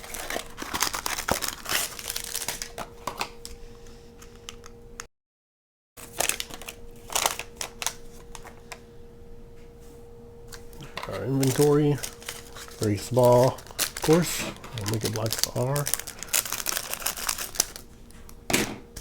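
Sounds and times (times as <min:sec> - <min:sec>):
plastic packaging crinkling: 0:00.0 - 0:03.6, 0:06.0 - 0:08.8, 0:10.5 - 0:19.0
faint steady hum: 0:00.0 - 0:05.1, 0:06.0 - 0:19.0.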